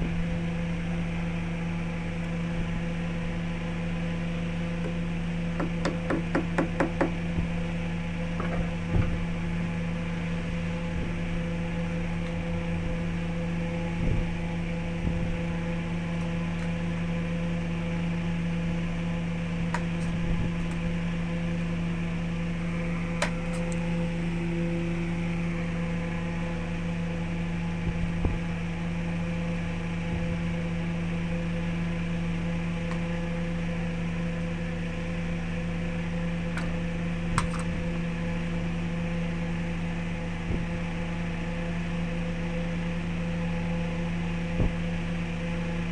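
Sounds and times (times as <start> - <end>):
wood lathe motor humming: 3.2 - 19.9, 20.5 - 27.8.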